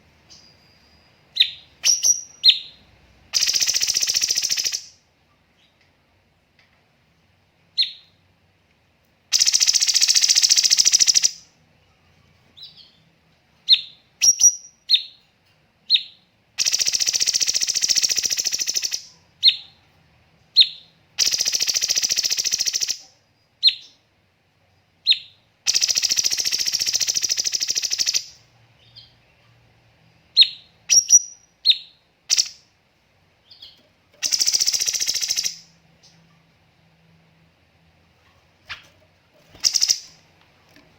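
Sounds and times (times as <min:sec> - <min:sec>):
bird singing whistled notes: 0:00.3 - 0:02.8, 0:03.4 - 0:05.0, 0:13.7 - 0:15.2, 0:30.4 - 0:32.6, 0:33.4 - 0:35.7, 0:39.6 - 0:40.2.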